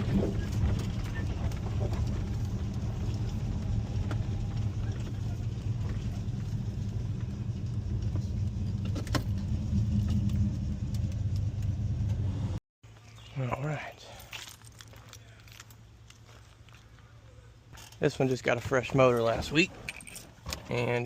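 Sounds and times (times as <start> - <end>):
car engine running: 0.0 - 12.6.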